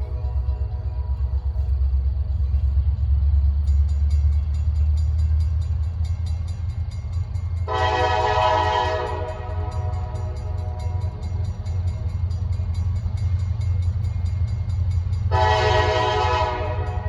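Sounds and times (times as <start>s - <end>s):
rhythmic clicking: 0.0s - 7.8s, 8.9s - 15.4s
diesel locomotive engine rumble: 0.0s - 17.0s
train horn blast: 7.7s - 11.0s, 15.3s - 17.0s.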